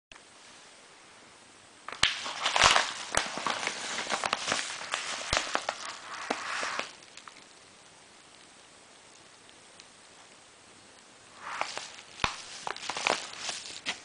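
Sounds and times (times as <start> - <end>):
packaging crackling and rustling: 1.9 - 7.7, 11.3 - 14.0.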